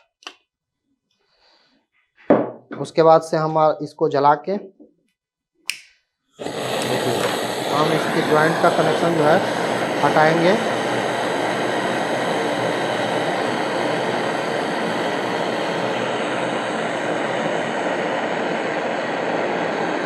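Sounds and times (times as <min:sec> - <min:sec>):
blowtorch flame hissing: 0:06.4 - 0:20.0.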